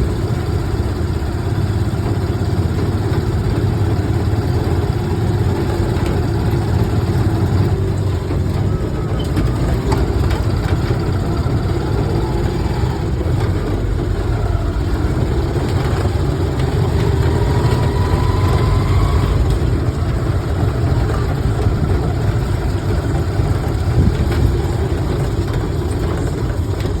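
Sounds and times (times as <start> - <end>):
strong wind buffeting microphone: 12.9 - 27.0.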